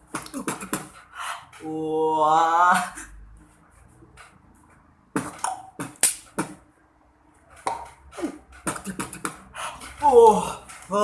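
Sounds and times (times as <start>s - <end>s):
beatboxing: 0.1s - 1.7s, 7.7s - 10.6s.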